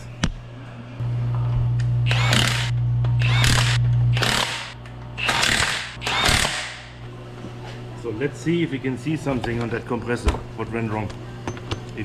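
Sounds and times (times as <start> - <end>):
low hum: 0.0 - 7.3
power tool bursts: 2.1 - 6.8.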